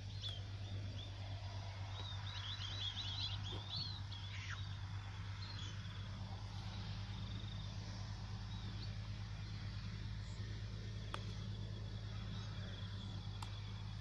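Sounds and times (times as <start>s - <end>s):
small birds chirping: 0.0s - 14.0s
steady low hum: 0.0s - 14.0s.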